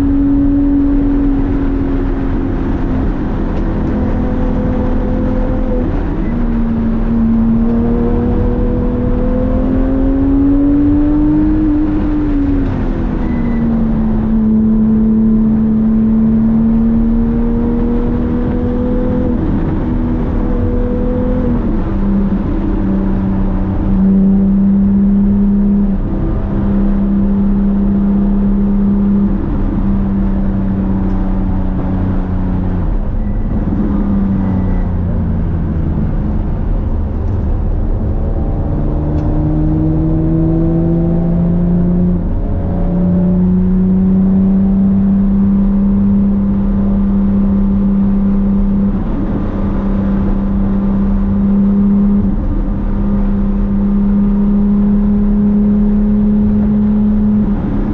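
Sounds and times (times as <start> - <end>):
car engine revving high: 0.0 - 57.9.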